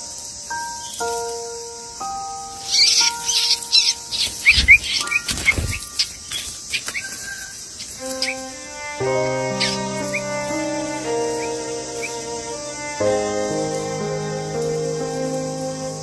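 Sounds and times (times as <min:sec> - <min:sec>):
background music with held notes: 0:00.0 - 0:05.7, 0:08.0 - 0:16.0
baby birds chirping: 0:02.5 - 0:08.5, 0:09.6 - 0:10.5.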